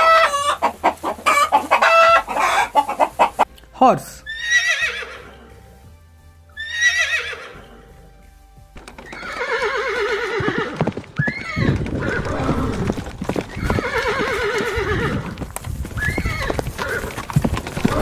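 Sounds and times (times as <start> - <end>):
horses whinnying: 0.0 - 3.5, 4.3 - 5.8, 6.6 - 8.1, 8.8 - 18.0
hoofbeats on the ground: 0.0 - 18.0.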